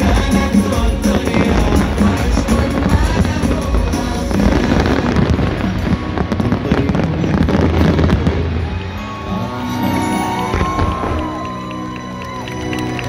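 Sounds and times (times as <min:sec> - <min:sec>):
fireworks booming: 0:00.0 - 0:09.0
fireworks crackling: 0:00.0 - 0:13.0
loud show music: 0:00.0 - 0:13.0.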